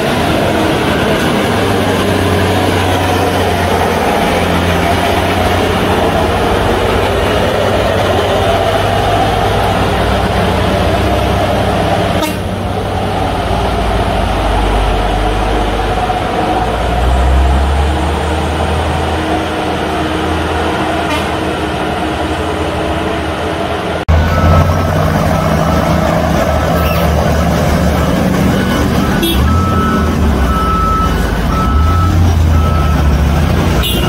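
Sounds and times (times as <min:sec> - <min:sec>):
heavy truck engine droning: 0:00.0 - 0:34.0.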